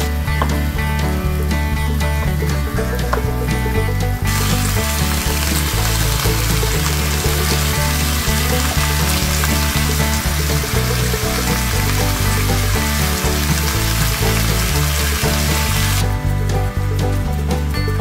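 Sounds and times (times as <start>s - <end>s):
background music with bass line: 0.0s - 18.0s
oil sizzling in a pot: 4.3s - 16.0s.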